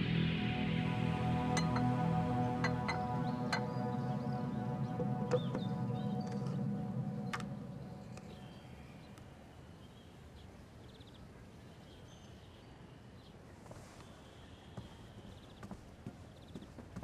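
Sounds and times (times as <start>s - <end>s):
background music: 0.0s - 9.1s
background hiss: 0.0s - 17.0s
faint bird chirps and trill: 0.6s - 13.4s.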